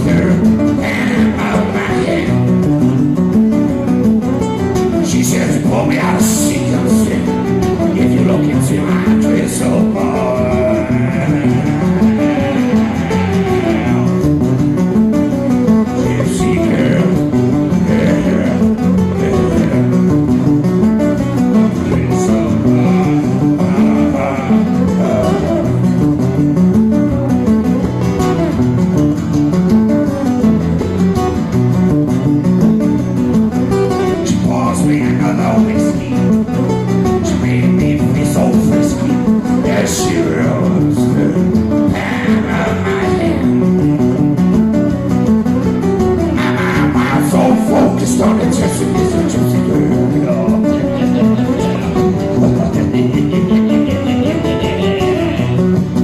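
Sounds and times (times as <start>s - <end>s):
guitar plucked and strummed: 0.0s - 56.0s.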